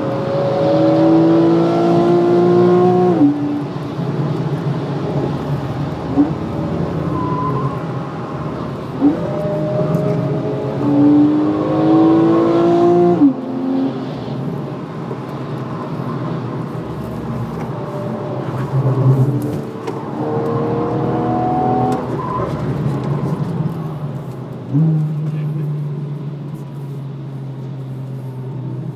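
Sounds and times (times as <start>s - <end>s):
car engine revving in cabin: 0.0s - 7.1s, 8.5s - 14.2s, 16.0s - 24.0s.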